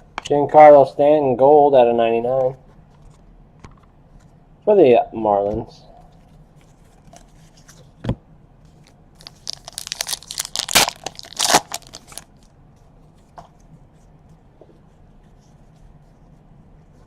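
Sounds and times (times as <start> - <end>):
foil wrapper tearing and crinkling: 9.2 - 12.3.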